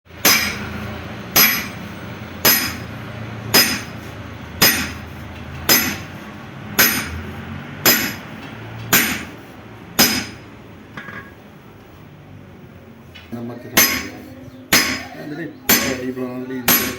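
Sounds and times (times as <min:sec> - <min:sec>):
hammer blows on metal: 0:00.2 - 0:02.9, 0:03.5 - 0:05.1, 0:05.7 - 0:06.2, 0:06.8 - 0:08.3.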